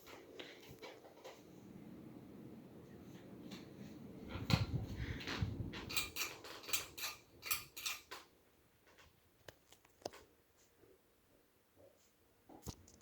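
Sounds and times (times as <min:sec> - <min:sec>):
ceiling fan humming: 0:00.0 - 0:09.3
mechanical clicks and rattles: 0:05.3 - 0:08.2.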